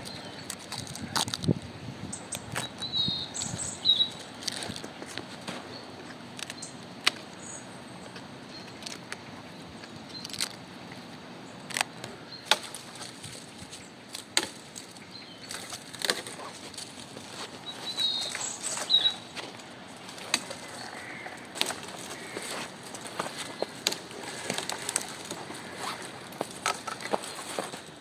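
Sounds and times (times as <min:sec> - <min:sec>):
wooden sticks knocking and snapping: 0:11.7 - 0:17.5, 0:18.3 - 0:28.0.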